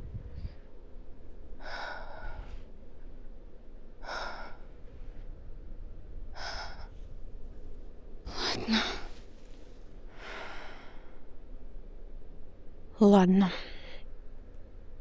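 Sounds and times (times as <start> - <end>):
woman breathing heavily: 1.6 - 2.8, 3.9 - 5.4, 6.2 - 7.5, 8.3 - 11.4.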